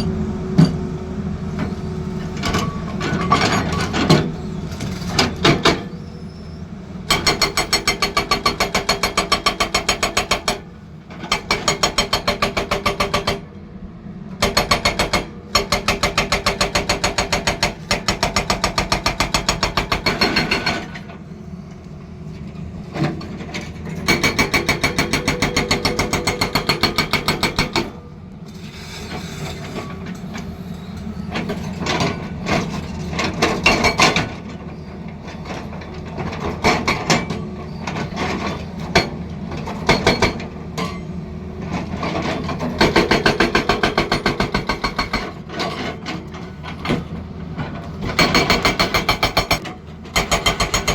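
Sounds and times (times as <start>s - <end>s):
hydraulic breaker hammering: 48.0s - 50.9s.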